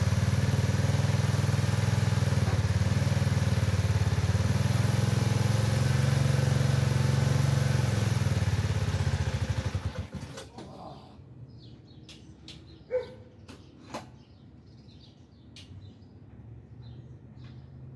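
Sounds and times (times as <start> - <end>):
small engine running: 0.0 - 10.5.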